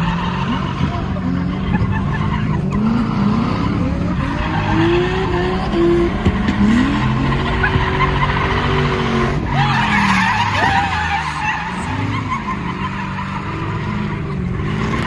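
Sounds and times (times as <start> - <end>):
car engine revving: 0.0 - 15.0
tyres squealing: 6.4 - 14.0.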